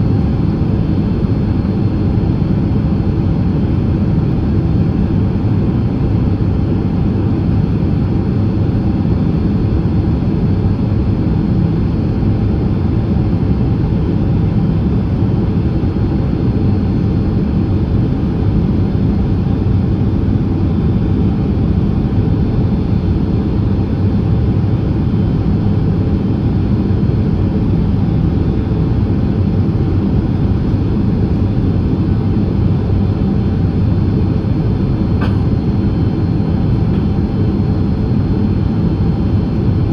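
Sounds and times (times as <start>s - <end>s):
aircraft engine and airflow noise: 0.0s - 39.9s.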